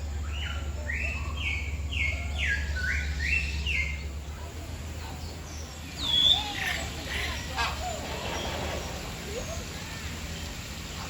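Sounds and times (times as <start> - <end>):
bird calling clear notes: 0.0 - 4.4, 5.1 - 8.5
steady low hum: 0.0 - 11.0.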